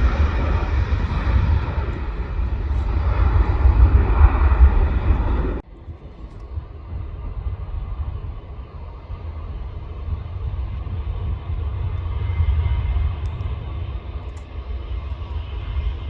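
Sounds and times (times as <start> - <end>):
distant jet engines rumbling: 0.0 - 16.0.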